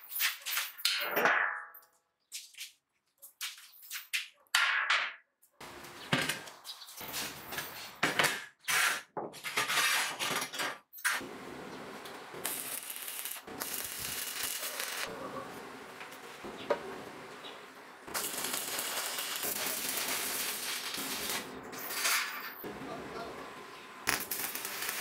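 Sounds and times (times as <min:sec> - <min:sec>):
scraping and rubbing: 0:08.6 - 0:10.5.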